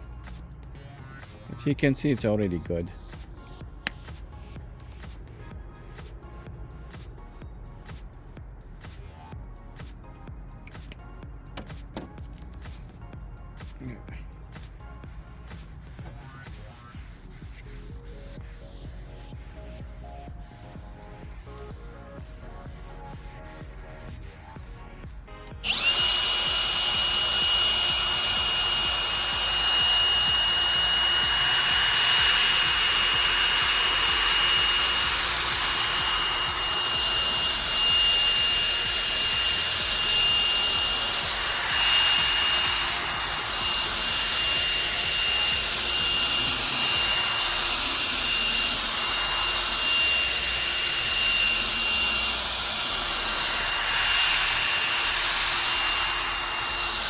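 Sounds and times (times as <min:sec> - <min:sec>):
power drill motor whine: 0:25.4 - 0:57.0.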